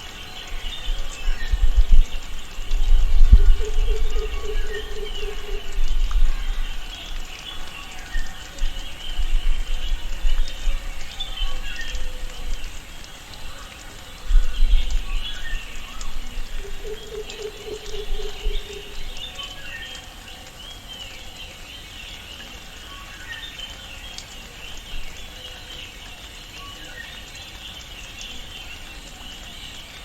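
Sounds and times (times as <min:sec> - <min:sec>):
birds chirping and calling: 0:00.2 - 0:13.0, 0:13.7 - 0:20.0.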